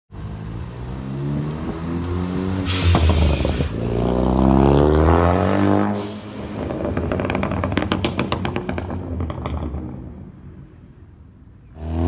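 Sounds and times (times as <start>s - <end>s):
car engine revving: 0.8s - 9.1s
exhaust hiss: 2.6s - 3.9s
exhaust pops: 2.7s - 4.0s, 6.3s - 10.3s.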